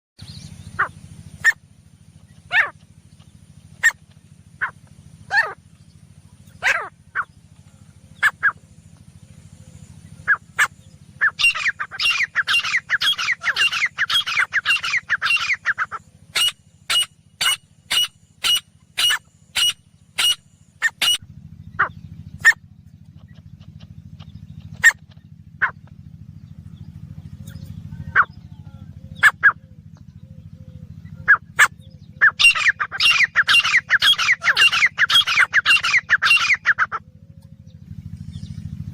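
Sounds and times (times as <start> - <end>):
francolin calling: 0.2 - 38.9
steady low hum: 0.2 - 38.9.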